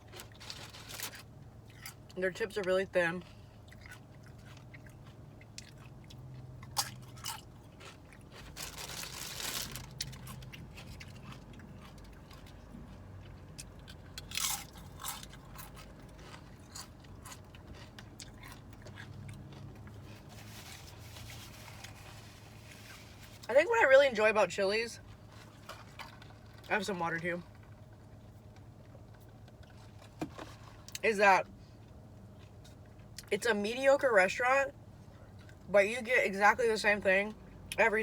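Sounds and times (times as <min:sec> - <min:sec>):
chips crunching: 0:00.0 - 0:02.0, 0:03.8 - 0:20.6
crackly chewing: 0:00.0 - 0:02.2, 0:03.2 - 0:23.5, 0:25.0 - 0:26.7, 0:27.4 - 0:31.0, 0:31.7 - 0:33.3.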